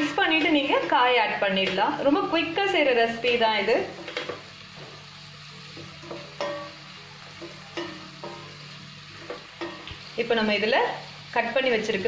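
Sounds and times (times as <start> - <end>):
food sizzling in a pan: 0.0 - 12.0
spoon knocking against a pan: 9.2 - 10.0.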